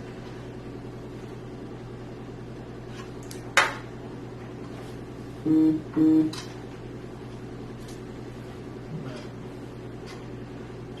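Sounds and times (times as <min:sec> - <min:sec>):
steady low hum: 0:00.0 - 0:11.0
short low tones: 0:05.4 - 0:06.4.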